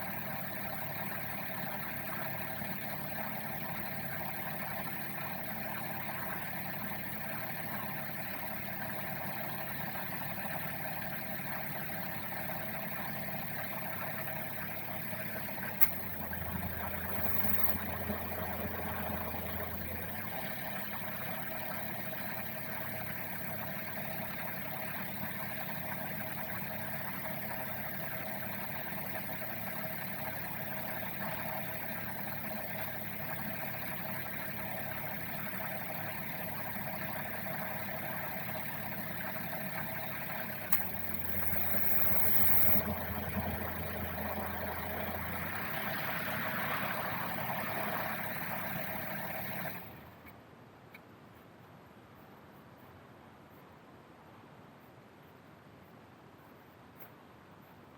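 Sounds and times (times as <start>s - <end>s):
car engine idling: 0.0s - 50.2s
low hum: 0.0s - 50.3s
click: 40.7s - 42.8s, 50.2s - 51.7s, 55.9s - 57.8s.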